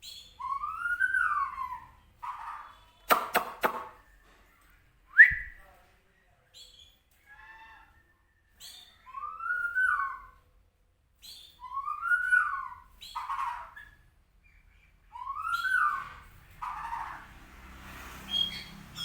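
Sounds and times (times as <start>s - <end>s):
bird singing whistles: 0.0s - 2.0s, 5.1s - 5.6s, 8.6s - 10.4s, 11.2s - 12.9s, 15.1s - 16.2s.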